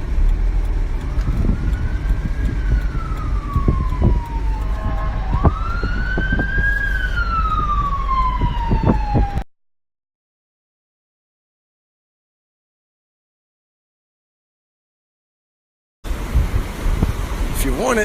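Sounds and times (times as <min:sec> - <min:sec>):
low rumble: 0:00.0 - 0:09.4, 0:16.1 - 0:17.6
emergency siren wailing: 0:00.0 - 0:09.5.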